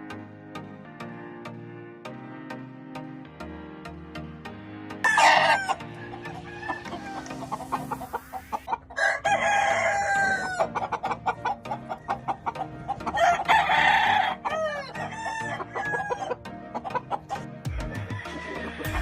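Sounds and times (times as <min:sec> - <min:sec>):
rooster crowing: 0:05.0 - 0:16.4, 0:17.7 - 0:19.0
hens clucking: 0:05.0 - 0:19.0.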